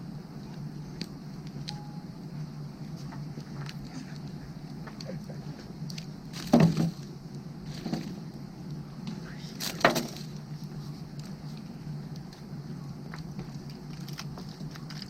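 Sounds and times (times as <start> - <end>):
firewood crackling: 0.0 - 15.0
steady low hum: 0.0 - 15.0.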